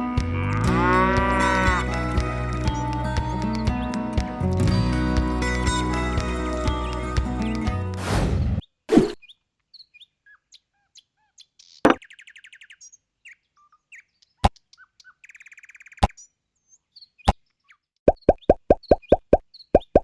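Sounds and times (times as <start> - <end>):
music track: 0.0 - 8.6
small birds chirping: 1.4 - 8.0, 8.6 - 20.0.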